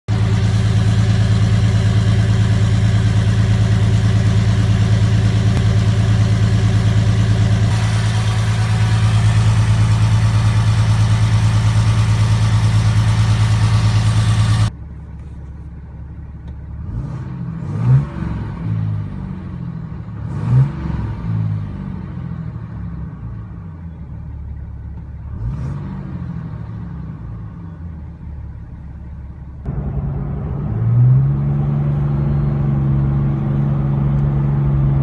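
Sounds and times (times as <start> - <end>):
engine revving: 0.1 - 14.7, 16.8 - 22.5, 25.2 - 27.4, 29.6 - 35.0
diesel engine idling: 0.1 - 17.0, 23.4 - 25.3, 27.2 - 33.8.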